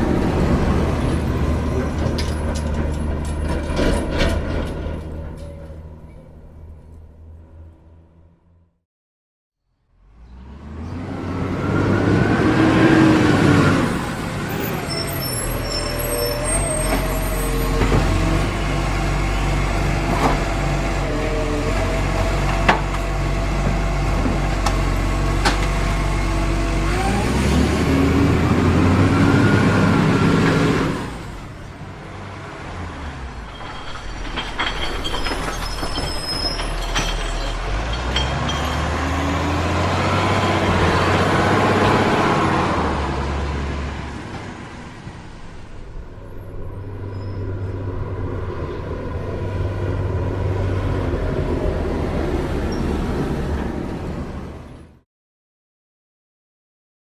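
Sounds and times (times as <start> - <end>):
truck engine revving: 10.0 - 54.5.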